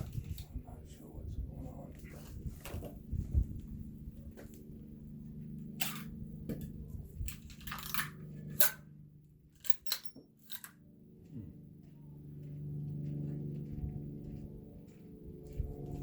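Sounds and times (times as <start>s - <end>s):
steady low hum: 0.0s - 16.0s
metallic clicks of pistol handling: 9.6s - 10.7s.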